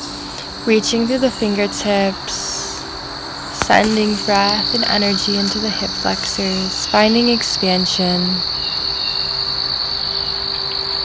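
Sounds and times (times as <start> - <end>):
insects chirping: 0.0 - 11.0
woman speaking: 0.4 - 2.8, 3.6 - 8.4.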